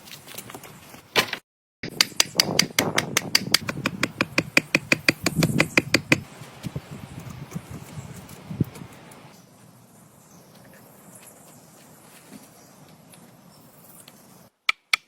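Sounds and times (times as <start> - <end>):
rapid sharp knocks: 1.9 - 6.3.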